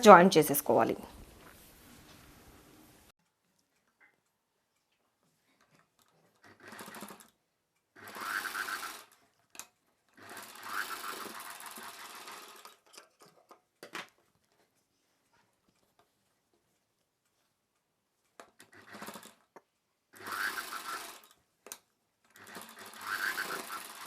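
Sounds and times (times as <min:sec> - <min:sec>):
sewing machine clicks: 0:05.9 - 0:14.1, 0:18.3 - 0:24.0
electric sewing machine stitching: 0:06.3 - 0:09.2, 0:10.1 - 0:12.9, 0:18.6 - 0:19.5, 0:20.1 - 0:21.4, 0:22.3 - 0:24.0.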